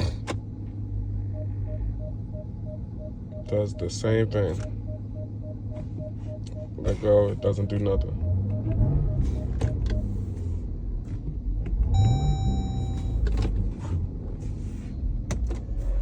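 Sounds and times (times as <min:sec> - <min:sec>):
car engine idling: 0:00.0 - 0:13.3
short electronic beep: 0:01.3 - 0:10.2, 0:12.0 - 0:13.2.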